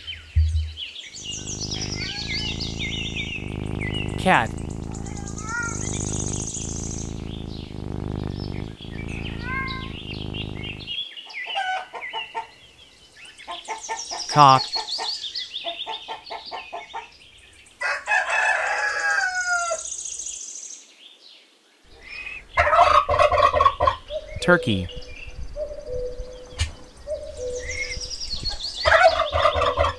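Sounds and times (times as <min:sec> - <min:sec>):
small birds chirping: 0:00.0 - 0:11.3
bird calls burst: 0:01.2 - 0:11.0
low purr-like sound: 0:01.2 - 0:11.0
rooster crowing: 0:17.8 - 0:19.7.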